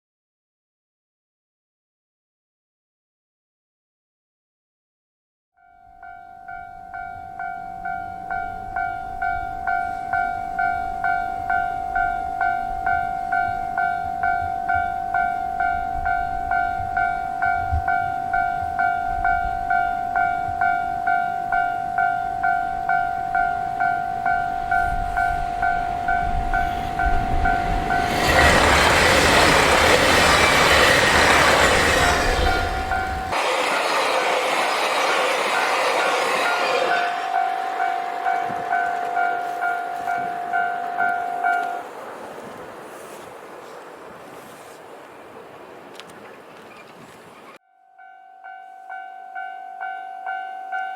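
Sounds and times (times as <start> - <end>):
train passing: 6.0 - 47.6
level crossing bell ringing: 36.9 - 41.9.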